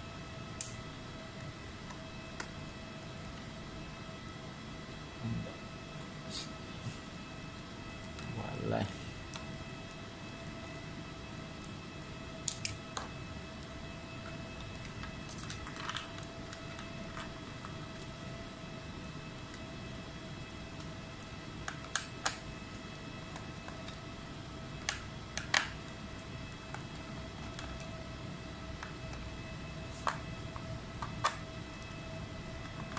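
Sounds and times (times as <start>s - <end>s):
faint steady whine: 0.0s - 32.9s.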